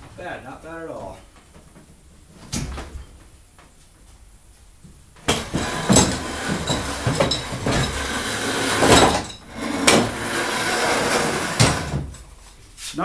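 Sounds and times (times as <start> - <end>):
metal hardware clinking on wood: 5.2 - 10.1
scraping: 5.2 - 12.6.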